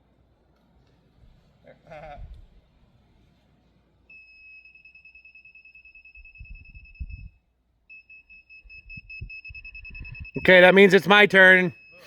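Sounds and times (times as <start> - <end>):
rapidly pulsing high beep: 8.7 - 12.0.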